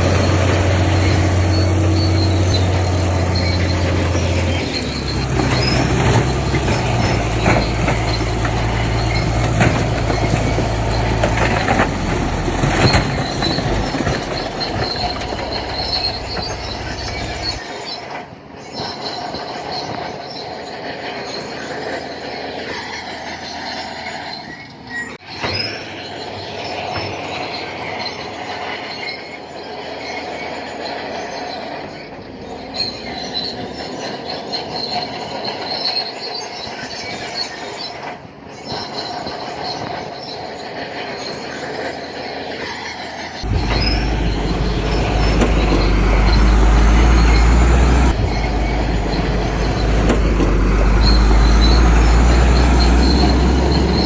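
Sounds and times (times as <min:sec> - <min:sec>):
heavy deep rumble: 0:00.0 - 0:17.6, 0:43.4 - 0:54.0
bulldozer running: 0:00.0 - 0:54.0
steel tracks squealing and clanking: 0:00.0 - 0:54.0.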